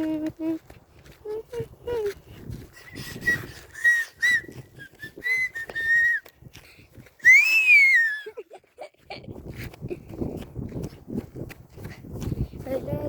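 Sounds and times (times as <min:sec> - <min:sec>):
person whistling: 0:02.8 - 0:06.2.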